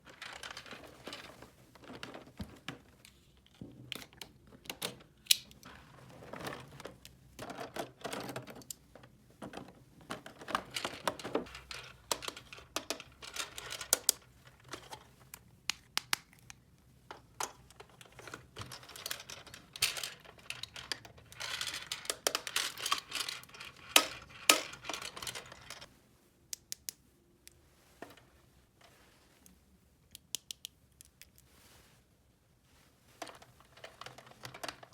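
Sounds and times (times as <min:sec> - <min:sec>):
plastic parts clicking: 0:03.9 - 0:05.7, 0:06.4 - 0:25.8, 0:33.2 - 0:34.9.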